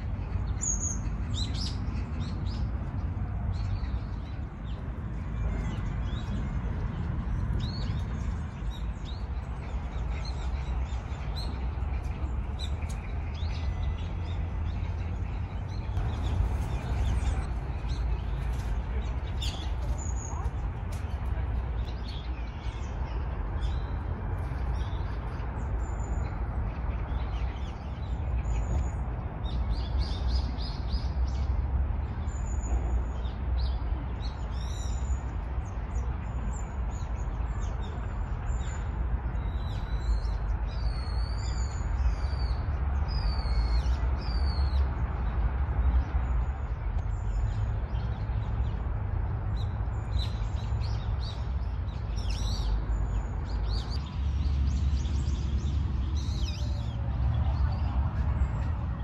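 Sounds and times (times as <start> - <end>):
steady low rumble: 0.0 - 27.3, 46.0 - 59.0.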